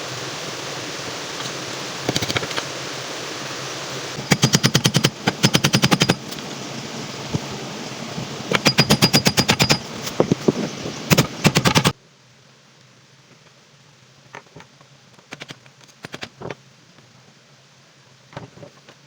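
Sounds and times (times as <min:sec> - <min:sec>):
steady hiss: 0:00.0 - 0:19.0
power driver rattling: 0:04.2 - 0:06.5, 0:08.5 - 0:11.9.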